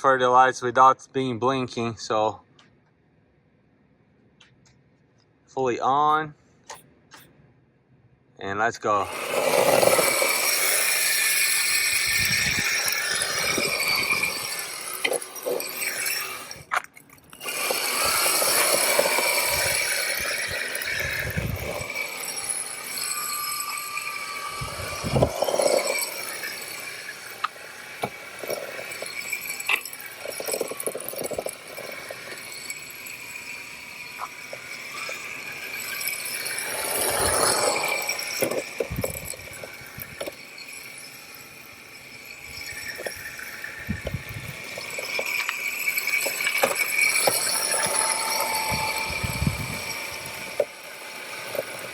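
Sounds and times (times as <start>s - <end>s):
electric motor whining: 9.0s - 51.9s
tyres scrubbing and skidding: 9.1s - 40.5s, 42.4s - 51.9s.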